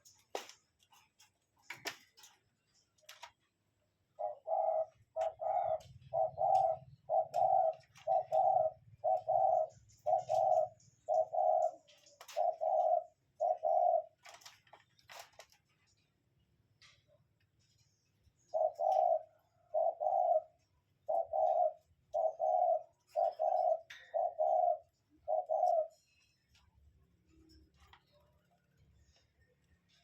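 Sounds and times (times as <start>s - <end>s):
bird calling: 4.0s - 14.6s, 18.4s - 26.5s.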